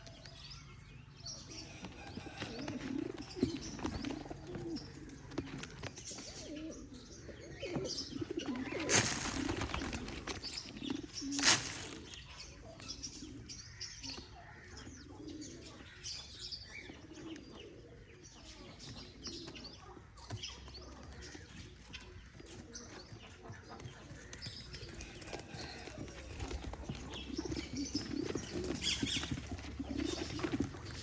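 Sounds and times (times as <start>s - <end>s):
pigeons cooing: 1.4s - 21.7s, 22.3s - 31.0s
wings flapping: 8.5s - 12.2s, 26.1s - 27.6s.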